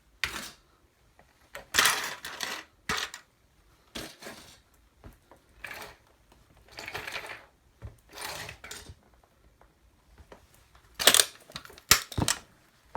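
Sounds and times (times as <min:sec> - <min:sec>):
plastic toy cracking under a boot: 0:10.9 - 0:12.5.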